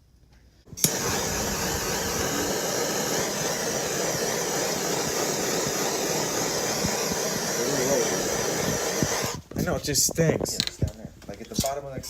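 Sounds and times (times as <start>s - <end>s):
hot-air blower rushing: 0.7s - 9.5s
blower switch click: 0.8s - 2.3s.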